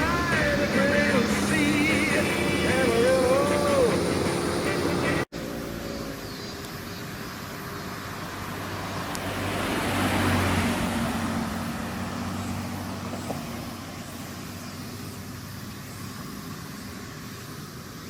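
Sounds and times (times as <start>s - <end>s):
car driving past: 7.9s - 15.5s.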